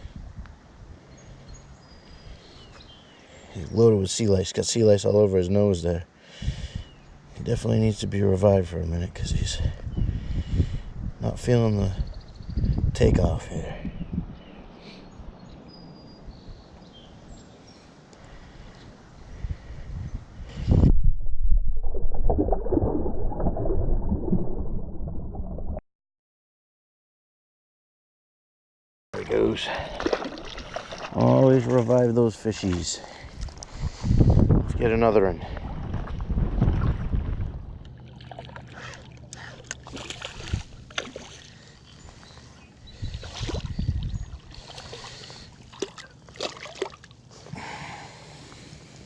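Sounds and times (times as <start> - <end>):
wind buffeting microphone: 9.2 - 14.5, 19.2 - 25.8, 33.2 - 38.0, 40.2 - 40.9, 42.8 - 44.7
water sloshing and gurgling: 20.5 - 25.8, 29.2 - 34.1, 35.6 - 47.5
heavy low rumble: 20.6 - 25.8.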